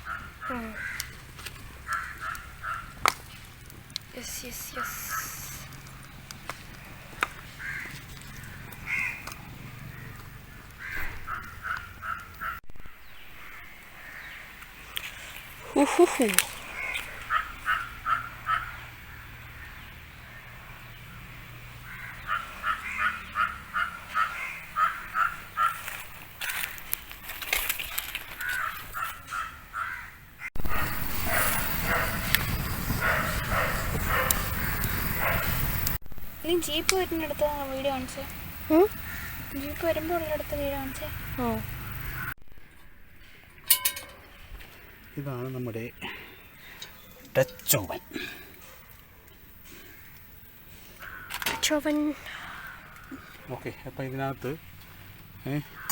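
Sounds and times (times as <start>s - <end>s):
crows cawing: 0.0s - 3.1s, 4.5s - 14.6s, 16.5s - 20.5s, 21.1s - 26.9s, 28.1s - 30.4s, 38.9s - 42.3s, 49.6s - 54.0s, 54.8s - 55.9s
bird calling: 0.0s - 3.5s, 4.1s - 27.0s, 36.4s - 55.9s.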